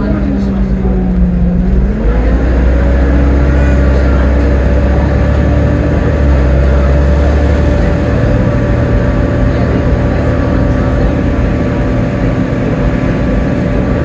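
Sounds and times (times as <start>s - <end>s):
bus diesel engine revving: 0.0s - 14.0s.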